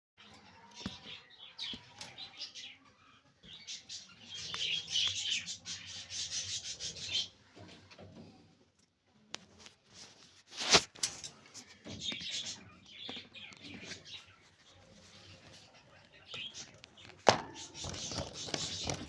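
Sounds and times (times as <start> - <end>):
budgerigars chattering: 0.9 - 7.4, 15.2 - 19.0.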